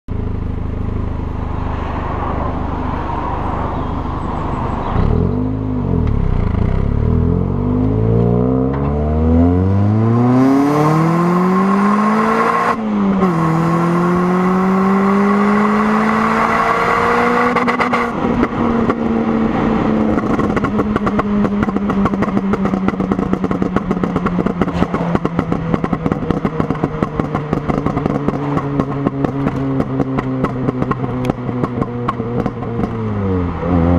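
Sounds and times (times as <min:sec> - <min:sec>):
car engine accelerating: 0:00.1 - 0:33.9
exhaust crackling on overrun: 0:17.5 - 0:33.9.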